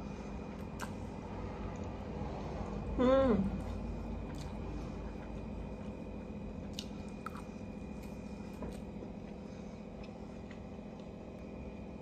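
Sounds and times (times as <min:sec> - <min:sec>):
steady low hum: 0:00.0 - 0:12.0
person chewing noodles: 0:03.6 - 0:11.5.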